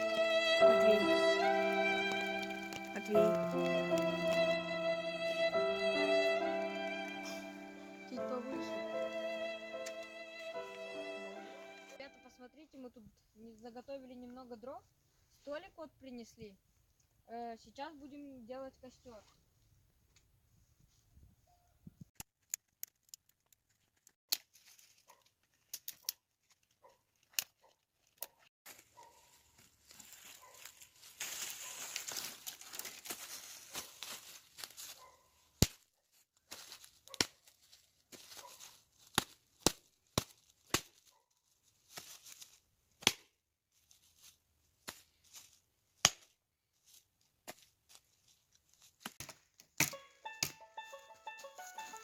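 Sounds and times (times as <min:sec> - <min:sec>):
rustling of leaves or brush: 0:00.0 - 0:11.9, 0:24.5 - 0:25.7, 0:28.7 - 0:35.2, 0:36.1 - 0:39.5, 0:40.1 - 0:42.7, 0:43.7 - 0:44.4, 0:45.0 - 0:45.7.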